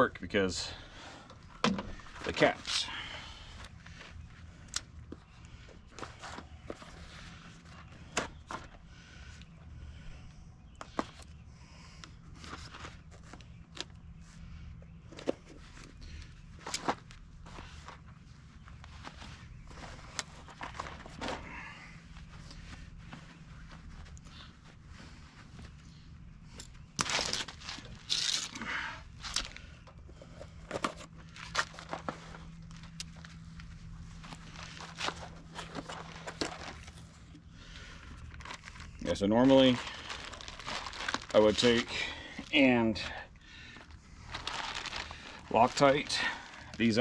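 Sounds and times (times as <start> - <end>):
low steady hum: 0.0 - 47.0
packaging rustling and tearing: 27.0 - 29.6, 30.7 - 37.2, 38.1 - 42.5, 43.8 - 47.0.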